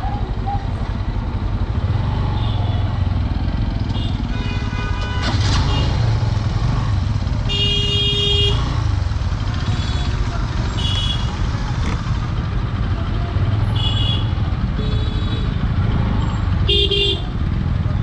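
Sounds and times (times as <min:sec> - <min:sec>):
motorcycle engine rumbling: 0:00.0 - 0:18.0
road traffic: 0:00.0 - 0:18.0
vehicle horn honking: 0:03.8 - 0:06.0, 0:07.5 - 0:08.7, 0:09.6 - 0:11.4, 0:13.7 - 0:15.6, 0:16.6 - 0:17.4.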